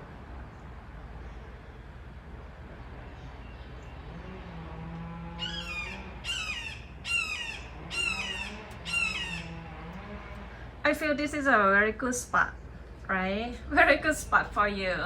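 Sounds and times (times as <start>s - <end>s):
bird of prey screaming: 5.4s - 9.6s.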